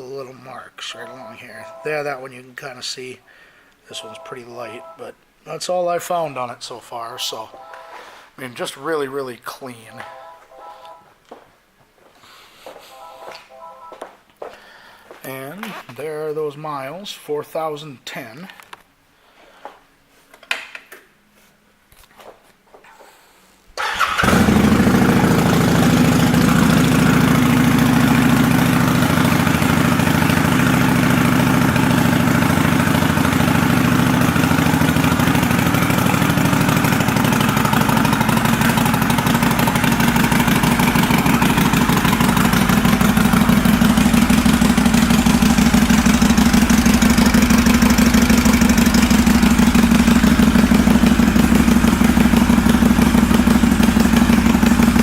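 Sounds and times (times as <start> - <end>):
motorcycle engine idling: 23.8 - 55.0.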